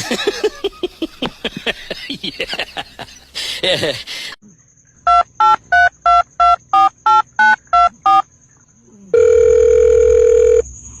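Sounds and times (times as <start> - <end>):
telephone keypad dialing beeps: 5.1 - 8.2
long steady telephone tone: 9.1 - 10.6.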